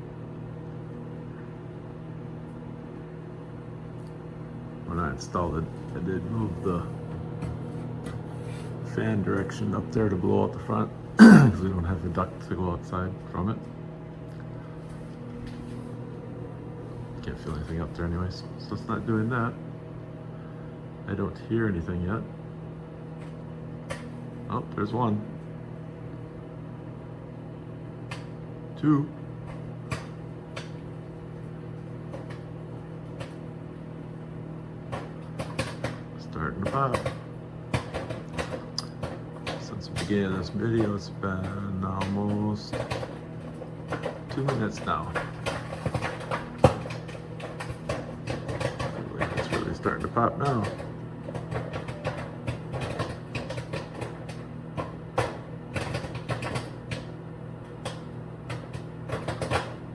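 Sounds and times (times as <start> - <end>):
microwave oven humming: 0.0 - 59.9
popcorn kernels popping: 29.4 - 30.9, 34.9 - 59.9.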